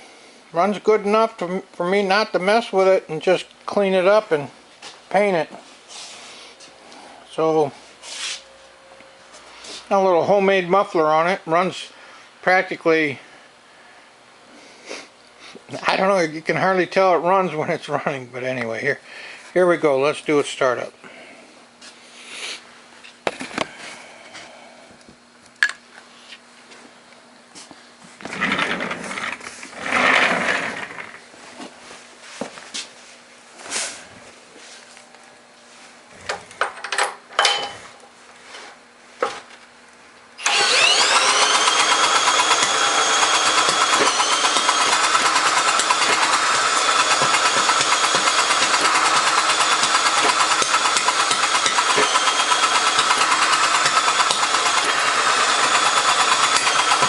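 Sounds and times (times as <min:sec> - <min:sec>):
single-cylinder engine running: 0:40.4 - 0:57.0.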